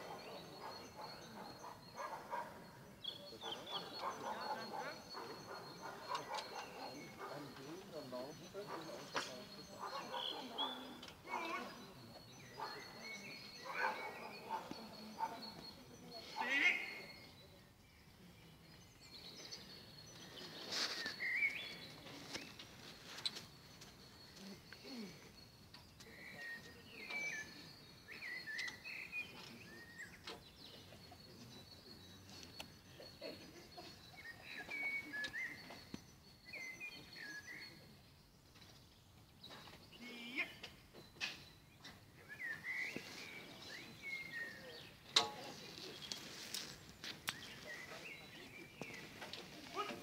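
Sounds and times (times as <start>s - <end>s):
birds singing faintly: 0.0s - 50.0s
thin steady high tone: 22.9s - 38.3s.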